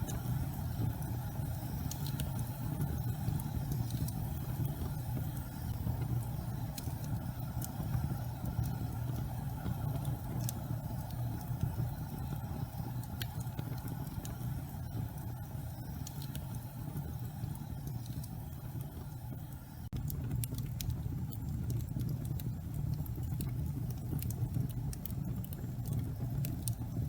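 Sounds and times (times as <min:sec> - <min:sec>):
faint crackles and pops: 0:00.0 - 0:27.0
low rumble of gas flame: 0:00.0 - 0:27.0.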